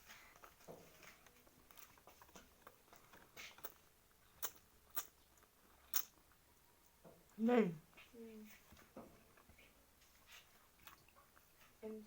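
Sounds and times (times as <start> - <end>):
person chewing: 1.3 - 7.0, 10.5 - 11.6.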